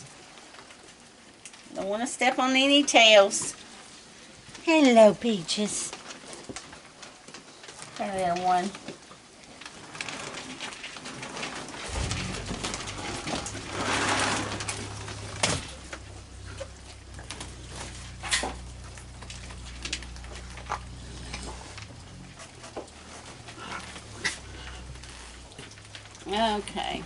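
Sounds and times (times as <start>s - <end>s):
rustle: 0.0s - 27.0s
raccoons cooing: 11.9s - 26.8s.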